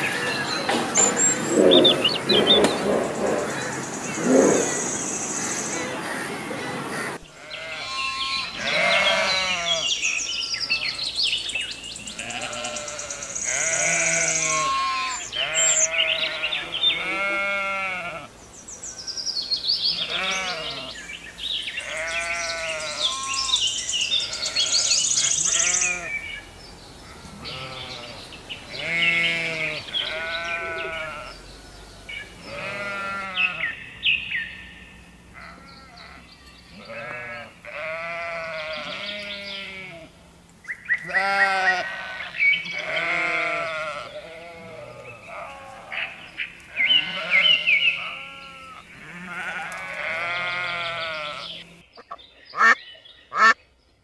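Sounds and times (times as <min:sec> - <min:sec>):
sheep bleating: 0:07.3 - 0:10.0, 0:10.6 - 0:11.2, 0:12.1 - 0:18.3, 0:20.0 - 0:21.0, 0:21.8 - 0:23.6, 0:24.2 - 0:26.2, 0:27.0 - 0:31.4, 0:32.4 - 0:33.8, 0:35.4 - 0:40.1, 0:41.0 - 0:51.6.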